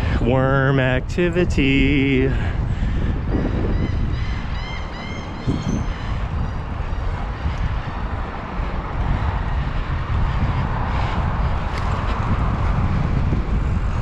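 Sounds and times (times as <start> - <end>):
wind buffeting microphone: 0.0 - 14.0
bird calls: 3.3 - 7.5.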